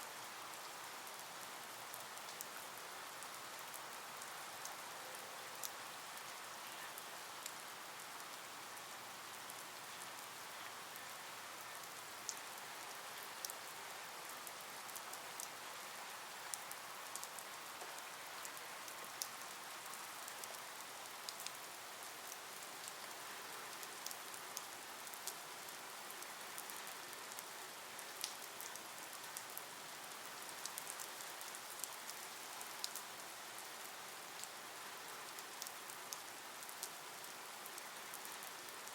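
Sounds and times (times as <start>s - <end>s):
raindrops ticking: 16.5s - 21.6s, 23.8s - 33.0s.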